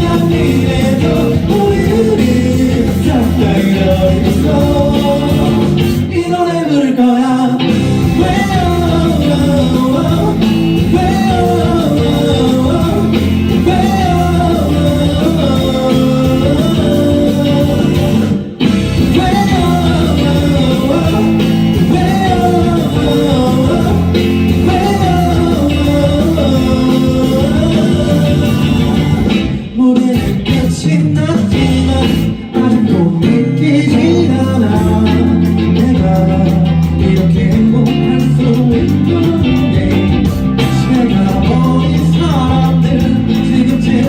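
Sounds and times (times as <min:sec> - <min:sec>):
melodic lead line: 0:00.0 - 0:06.2, 0:07.6 - 0:30.8
live rock band playing: 0:00.0 - 0:44.0.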